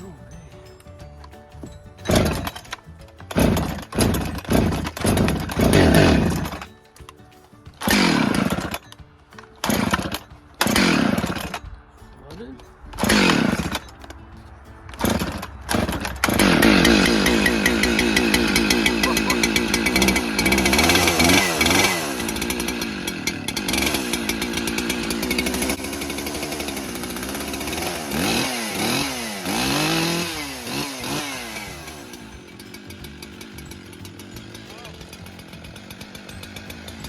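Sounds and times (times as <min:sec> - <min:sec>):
chainsaw revving: 0:01.6 - 0:06.8, 0:07.8 - 0:11.7, 0:13.0 - 0:14.2, 0:14.8 - 0:37.0.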